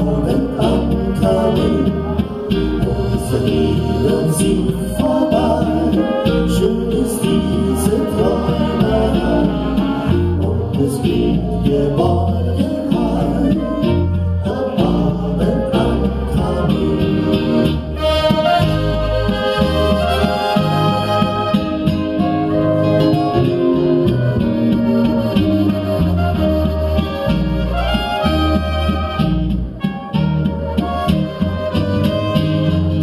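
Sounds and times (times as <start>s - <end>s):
person singing: 0.0s - 17.7s
band playing live: 0.0s - 33.0s
steady bass line: 0.0s - 33.0s.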